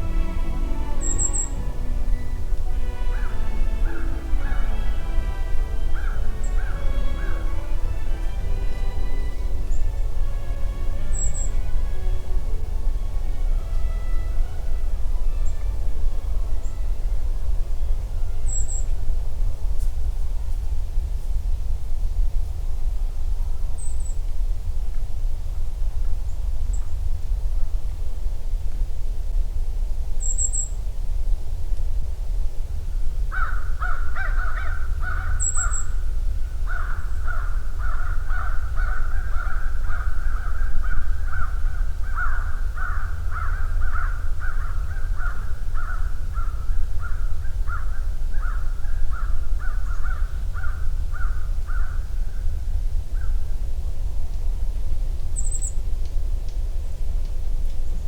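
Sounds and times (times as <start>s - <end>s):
high thin bird calls: 0.0s - 8.0s, 35.1s - 36.0s
harsh bird calls: 0.0s - 8.4s, 33.3s - 36.0s
steady low rumble: 0.0s - 58.0s.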